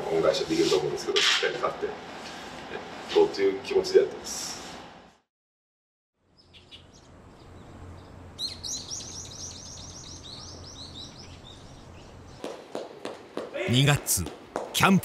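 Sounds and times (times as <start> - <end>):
low background hum: 6.2 - 12.5
songbird chirping: 6.4 - 12.3.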